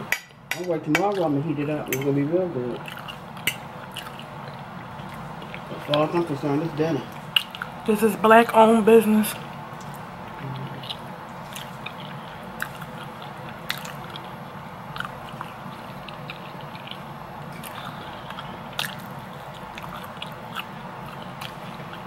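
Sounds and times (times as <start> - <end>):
person chewing: 2.7 - 6.3, 7.1 - 7.8, 9.8 - 22.0
mouth clicks and smacks: 7.3 - 7.8.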